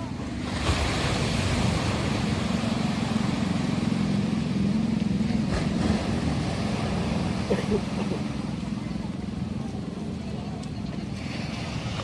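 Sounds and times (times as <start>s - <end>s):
ocean surf breaking: 0.0s - 9.0s
engine humming: 0.0s - 12.0s.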